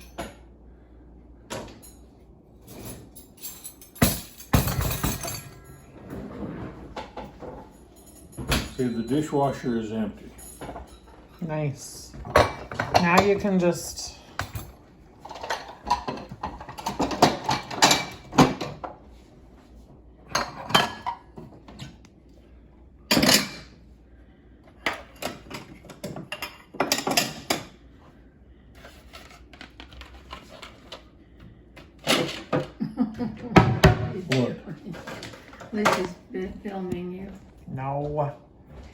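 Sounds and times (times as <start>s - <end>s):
dishes clinking and clattering: 0.0s - 0.5s, 1.5s - 19.0s, 20.2s - 22.0s, 23.1s - 23.8s, 24.7s - 28.0s, 32.0s - 36.6s.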